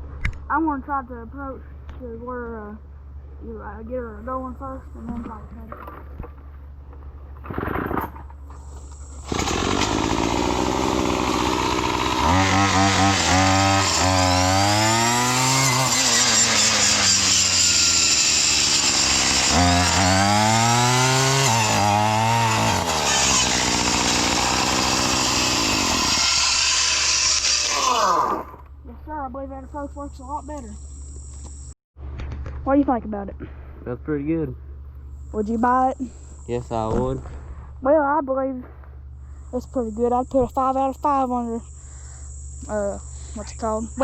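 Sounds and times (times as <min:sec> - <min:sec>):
weed trimmer engine revving: 0:09.1 - 0:28.6
blade cutting through tree: 0:09.2 - 0:28.6.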